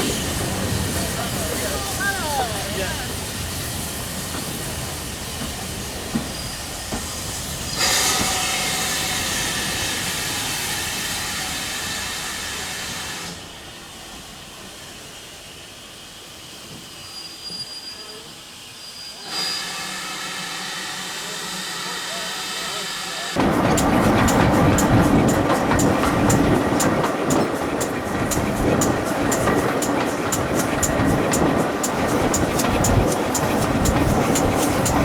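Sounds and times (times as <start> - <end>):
steam hissing: 0.0 - 35.0
train running on rails: 0.0 - 35.0.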